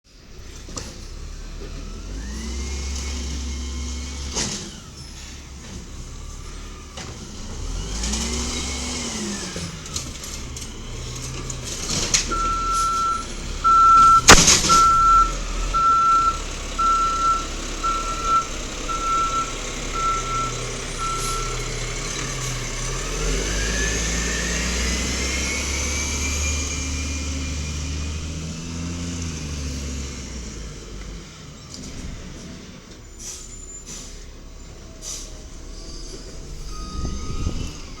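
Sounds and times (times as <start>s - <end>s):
garbage truck diesel engine revving: 0.1s - 38.0s
reversing beeper: 12.3s - 22.0s, 35.7s - 38.0s
loud bang: 14.0s - 15.9s.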